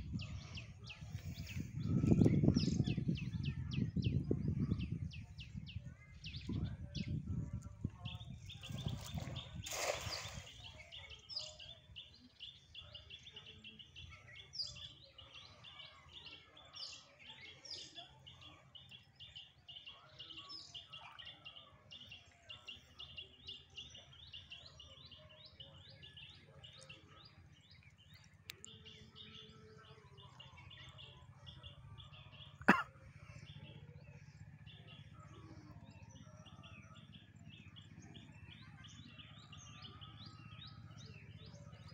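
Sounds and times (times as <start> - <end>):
other birds chirping: 32.4 - 32.8.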